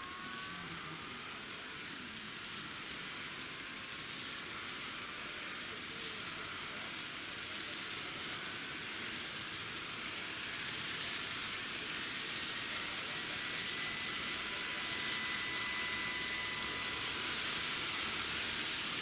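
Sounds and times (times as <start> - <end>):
faint motor whine: 0.0 - 19.0
model train wheels on rail: 0.0 - 19.0.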